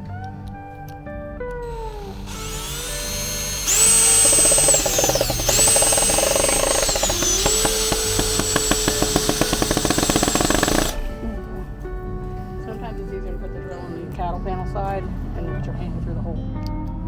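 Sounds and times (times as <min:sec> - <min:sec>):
cordless drill motor whine: 0:01.6 - 0:11.4
rapid clicking: 0:01.7 - 0:11.3.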